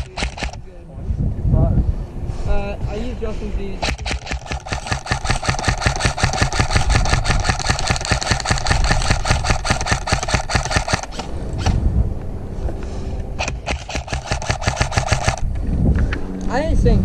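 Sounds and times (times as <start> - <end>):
airsoft gun firing full auto: 0.0 - 0.6, 3.8 - 11.7, 13.4 - 15.4
gearbox motor whirring: 3.8 - 11.8, 13.4 - 15.4.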